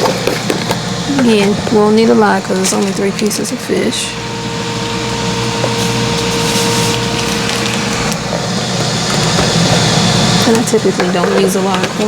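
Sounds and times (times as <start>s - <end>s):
air fryer hum: 0.0s - 12.0s.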